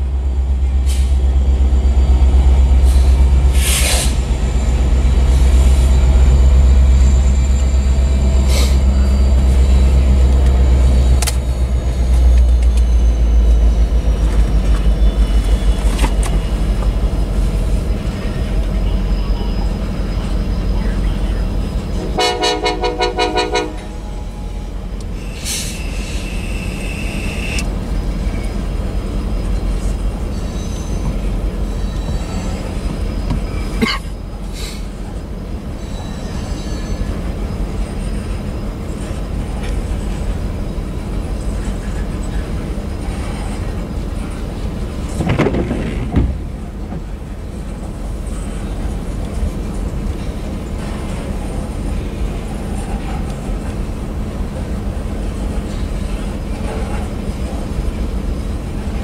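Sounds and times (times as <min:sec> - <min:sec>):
diesel locomotives rumbling: 0:00.0 - 0:59.0
high wheel squeal: 0:00.6 - 0:22.4, 0:23.7 - 0:44.7
train horn: 0:22.0 - 0:24.3.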